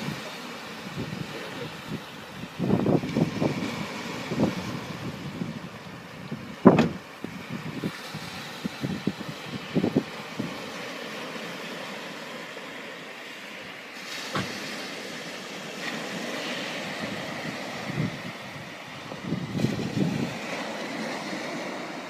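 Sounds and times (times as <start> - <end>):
sea waves washing: 0.0 - 22.0
wind buffeting microphone: 0.8 - 10.8, 16.8 - 22.0
thud: 6.7 - 7.0, 14.3 - 14.6.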